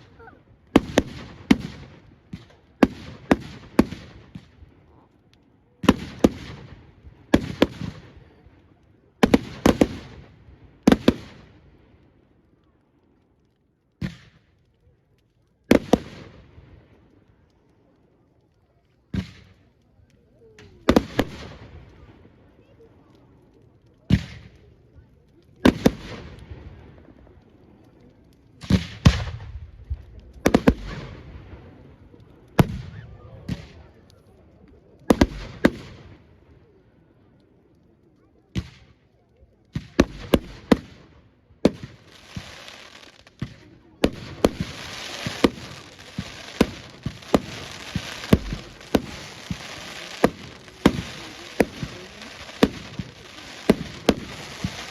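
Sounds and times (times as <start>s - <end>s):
fireworks bursting with bangs: 0.0s - 12.2s, 14.0s - 14.8s, 15.6s - 17.6s, 19.1s - 36.6s, 38.4s - 54.9s
firework shells bursting: 41.6s - 54.9s.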